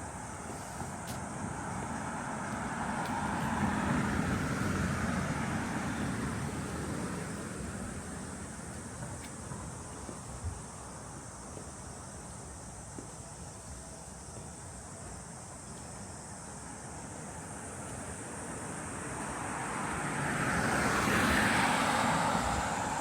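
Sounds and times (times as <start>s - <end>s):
vehicle passing close by: 1.8s - 8.6s, 18.4s - 23.0s.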